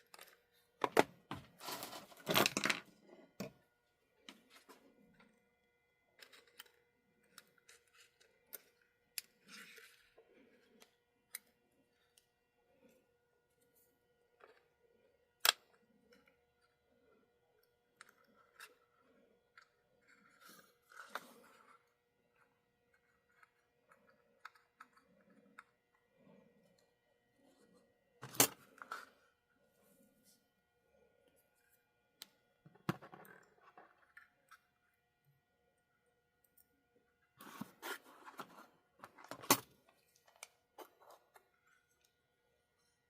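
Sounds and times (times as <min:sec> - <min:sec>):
small parts and tools clicking: 0:06.1 - 0:27.6.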